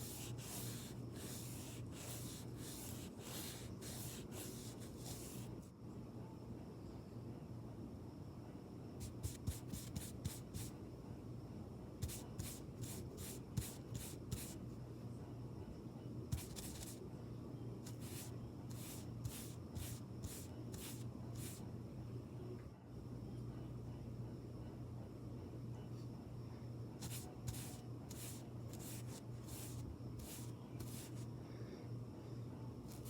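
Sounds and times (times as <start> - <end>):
brush swishing: 0.0 - 5.5, 27.0 - 31.2
low steady hum: 0.0 - 33.0.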